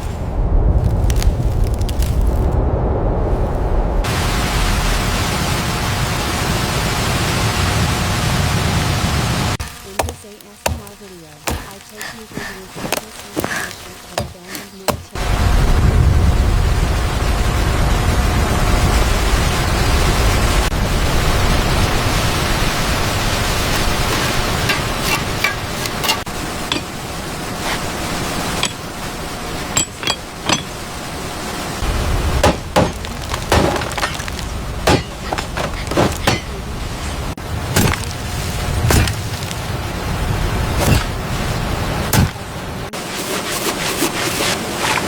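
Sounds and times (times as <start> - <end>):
sharp clinks and knocks: 24.1 - 27.0, 28.6 - 28.8, 29.8 - 30.8.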